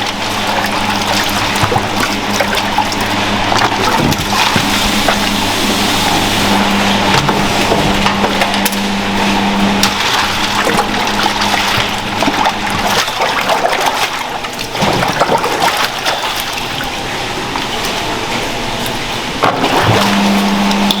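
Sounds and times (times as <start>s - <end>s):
machine hum: 0.0s - 21.0s
running water: 0.0s - 21.0s
items clattering and knocking: 6.2s - 8.7s.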